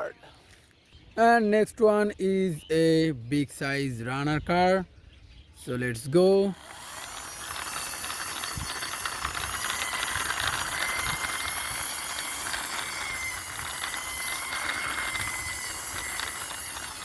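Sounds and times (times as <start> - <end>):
toy car wheels rattling: 6.5 - 17.0
faint thin whine: 6.9 - 17.0.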